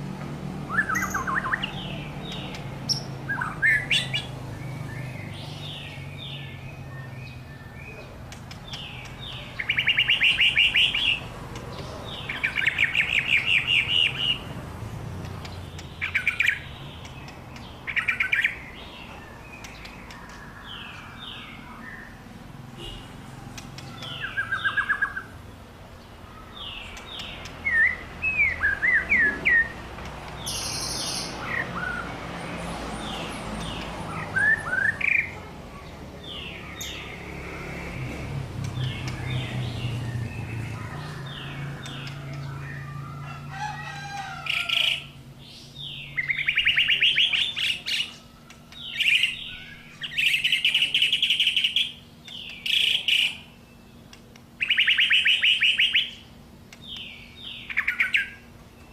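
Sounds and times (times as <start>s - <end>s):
bird chattering trills: 54.6s - 58.4s.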